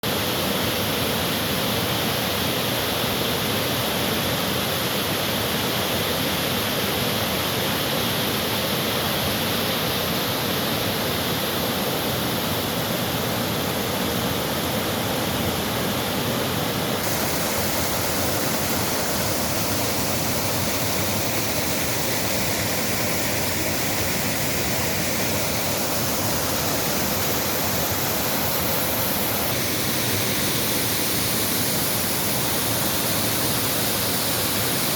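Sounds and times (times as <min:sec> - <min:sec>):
waterfall rushing: 0:01.8 - 0:34.9.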